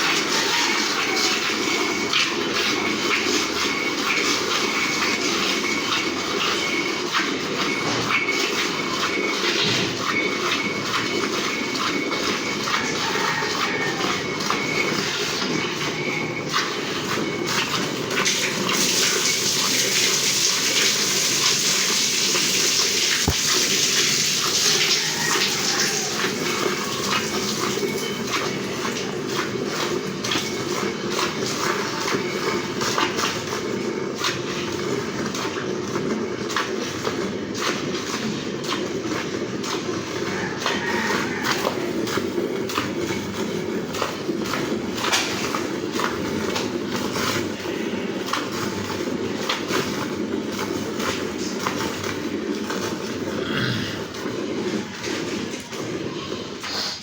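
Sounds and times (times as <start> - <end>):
milk squirting into a pail: 16.5 - 33.6.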